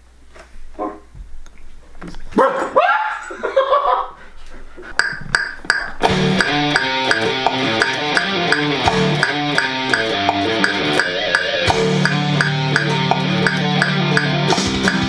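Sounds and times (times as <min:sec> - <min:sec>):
evenly spaced clicks: 0:05.0 - 0:15.0
guitar rock music: 0:05.3 - 0:15.0.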